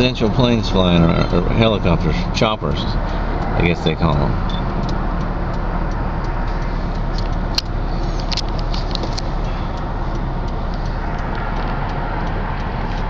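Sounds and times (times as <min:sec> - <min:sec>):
car road and engine noise: 0:00.0 - 0:13.0
light clicks or rattles: 0:06.4 - 0:09.6.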